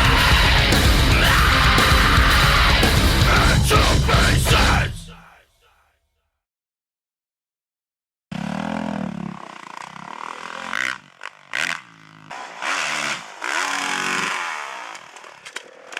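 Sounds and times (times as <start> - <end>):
motocross bike engine revving: 0.0 - 5.0, 8.3 - 15.9.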